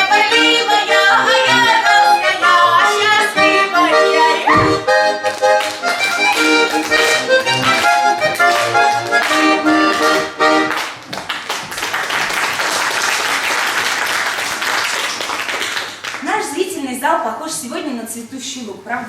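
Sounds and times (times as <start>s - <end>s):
accordion playing lively tune: 0.0s - 11.1s
audience applause: 5.2s - 16.2s.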